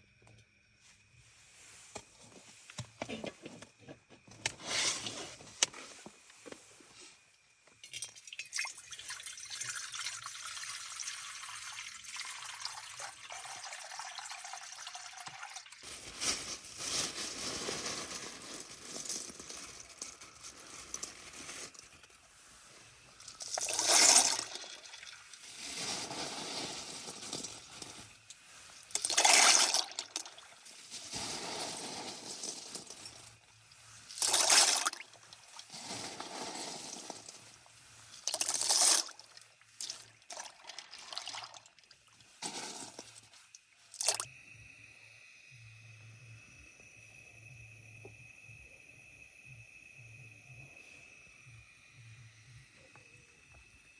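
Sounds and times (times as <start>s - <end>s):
water pouring: 7.8s - 16.4s, 23.2s - 33.3s, 34.0s - 37.5s, 38.2s - 43.3s, 44.0s - 44.3s.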